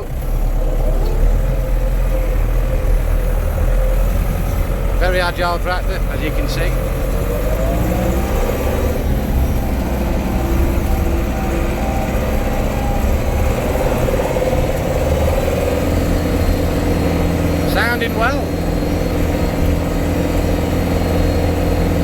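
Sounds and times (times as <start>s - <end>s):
steady engine whine: 0.0s - 22.0s
tractor diesel engine drone: 0.0s - 22.0s.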